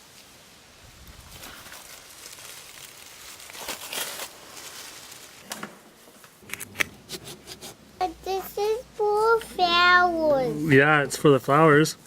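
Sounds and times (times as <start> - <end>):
dry grass rustling and crackling: 0.0 - 6.6.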